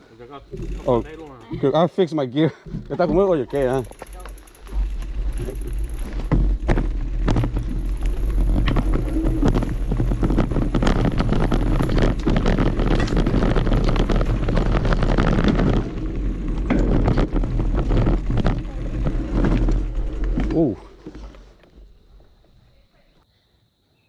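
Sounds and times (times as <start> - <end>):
bike clattering on rough trail: 0.1 - 22.9
wind buffeting microphone: 4.8 - 20.4.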